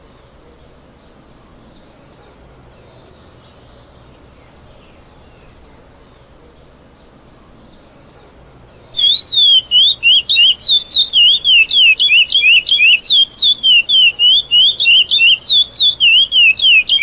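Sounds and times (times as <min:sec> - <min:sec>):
finch singing whistled notes: 0:08.9 - 0:17.0.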